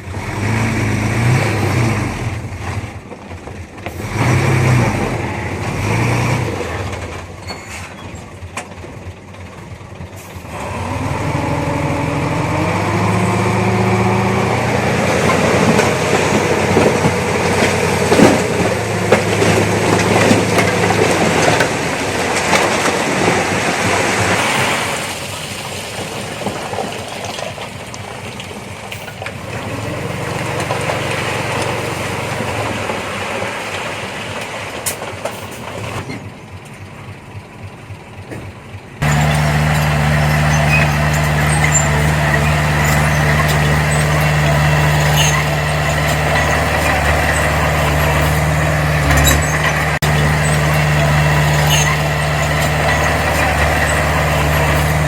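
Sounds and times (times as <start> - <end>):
bulldozer diesel engine: 0.0 - 55.0
steel tracks clanking and squealing: 5.8 - 8.8, 12.4 - 25.0, 26.9 - 37.1, 38.2 - 55.0.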